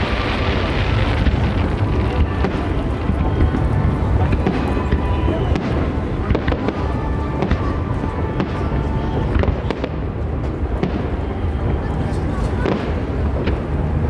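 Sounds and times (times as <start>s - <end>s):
low rumble: 0.0s - 6.2s
fireworks bangs and crackles: 0.0s - 14.0s.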